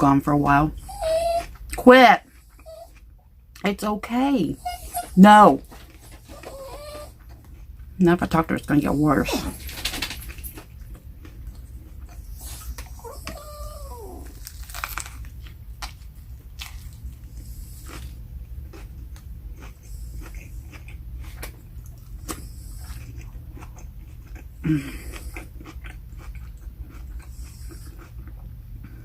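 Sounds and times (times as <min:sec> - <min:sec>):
steady low hum: 0:00.0 - 0:29.0
chewing and crunching sandwich: 0:05.6 - 0:08.0, 0:09.7 - 0:29.0.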